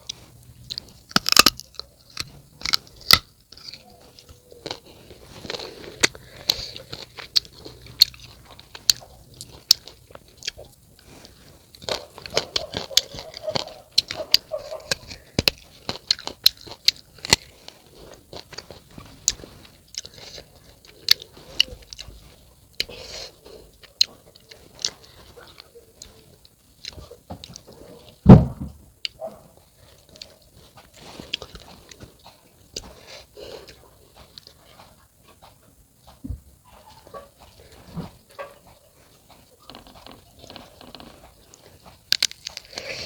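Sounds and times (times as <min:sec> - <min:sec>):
crunchy biting and chewing: 0:00.0 - 0:43.0
loud thump: 0:28.2 - 0:28.8.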